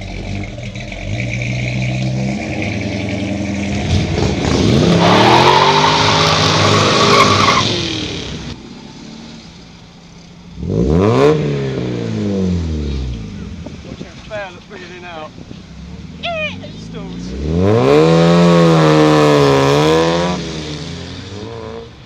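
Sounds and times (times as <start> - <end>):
car engine revving: 0.0 - 22.0
tyres squealing and skidding: 0.3 - 8.2.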